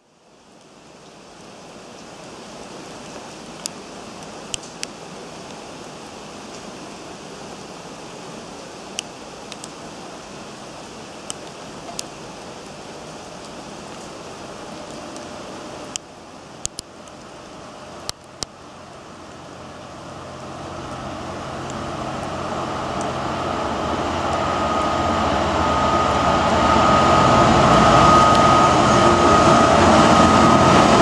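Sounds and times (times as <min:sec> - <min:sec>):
rain hissing: 0:00.0 - 0:31.0.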